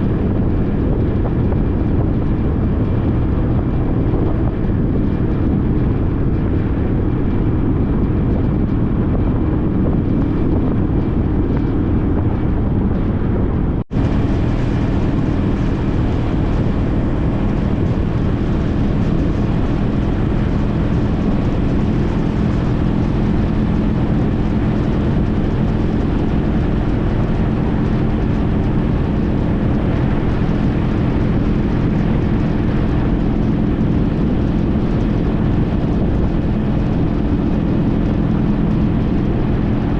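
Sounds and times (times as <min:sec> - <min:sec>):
motorcycle engine cruising: 0:00.0 - 0:39.9
riding wind noise: 0:00.0 - 0:39.9.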